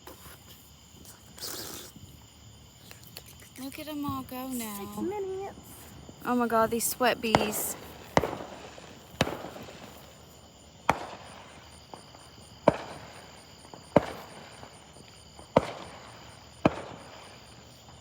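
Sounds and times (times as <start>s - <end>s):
fireworks bangs with echo: 4.0s - 18.0s.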